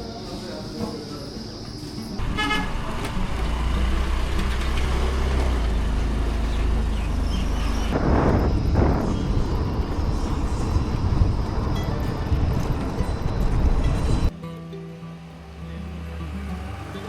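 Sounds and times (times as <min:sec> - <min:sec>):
short horn toot: 0:02.2 - 0:02.9
vehicle rumbling: 0:02.2 - 0:14.4, 0:15.2 - 0:17.0.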